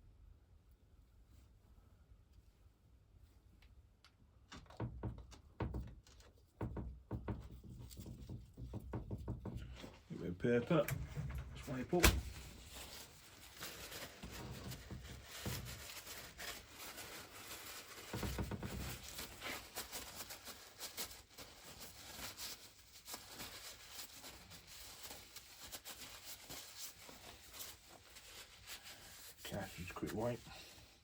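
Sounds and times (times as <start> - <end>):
soft knocks: 4.6 - 10.0
paper towel rubbing: 11.6 - 31.0.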